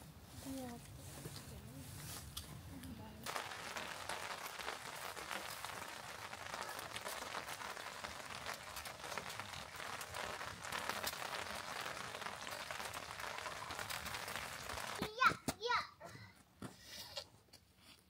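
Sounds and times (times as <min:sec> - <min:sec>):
light rain pattering: 0:02.7 - 0:15.1.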